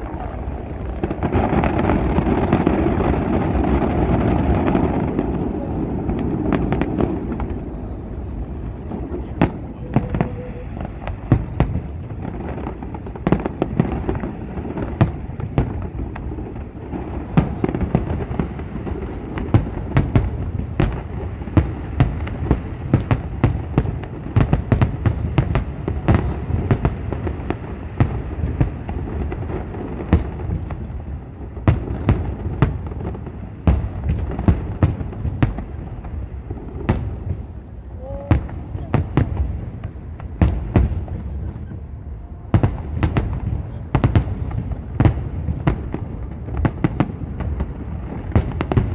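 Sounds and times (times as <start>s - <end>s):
firework shells bursting: 0.0s - 5.4s
low rumble of booms: 0.0s - 48.9s.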